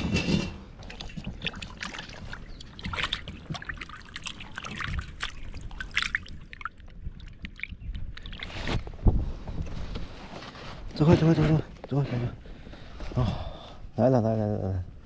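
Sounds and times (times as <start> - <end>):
water splashing and trickling: 0.3 - 9.0.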